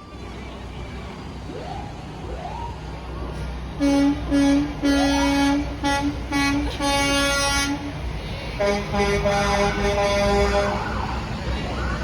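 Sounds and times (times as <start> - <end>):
truck horn honking: 3.8 - 8.0, 8.6 - 10.8.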